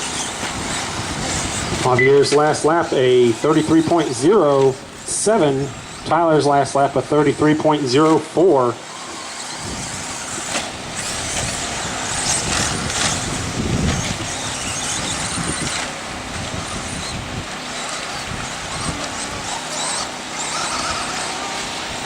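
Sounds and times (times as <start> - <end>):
high whines of passing trucks: 0.0 - 22.0
toy racing trucks hissing: 0.0 - 22.0.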